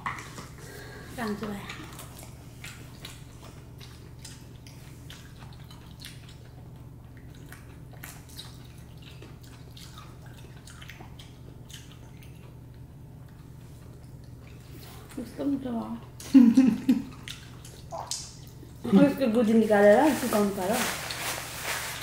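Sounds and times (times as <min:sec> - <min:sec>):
chewing mouth sounds: 0:01.4 - 0:15.2, 0:16.9 - 0:18.9.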